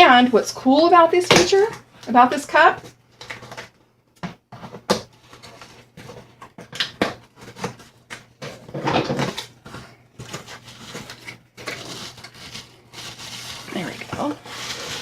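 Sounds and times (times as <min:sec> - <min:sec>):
packaging rustling: 0:04.6 - 0:15.0
plastic parts knocking: 0:08.4 - 0:09.5.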